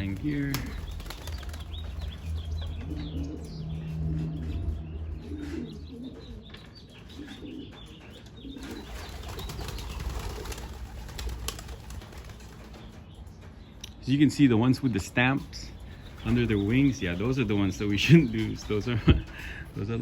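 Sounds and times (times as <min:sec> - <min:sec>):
pigeon wings flapping: 0:00.0 - 0:02.6, 0:08.6 - 0:13.0, 0:16.0 - 0:19.4
low rumble: 0:00.0 - 0:06.6
pigeons cooing: 0:00.0 - 0:13.2, 0:15.7 - 0:20.0.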